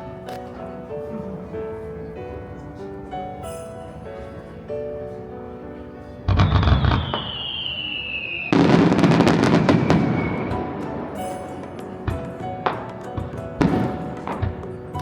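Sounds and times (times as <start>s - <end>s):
music playing: 0.0s - 7.6s, 8.5s - 15.0s
fireworks bursting: 6.3s - 15.0s
fireworks crackling: 6.3s - 15.0s
falling whistling tone: 6.4s - 10.9s.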